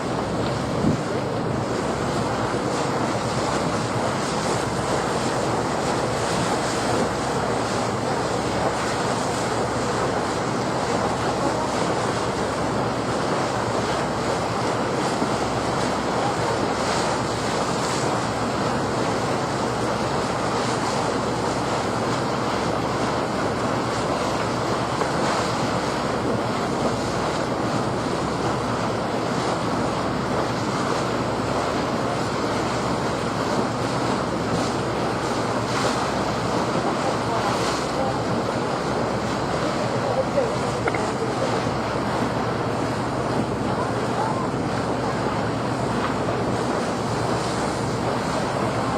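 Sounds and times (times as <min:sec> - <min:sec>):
wind blowing over microphone: 0:00.2 - 0:01.3.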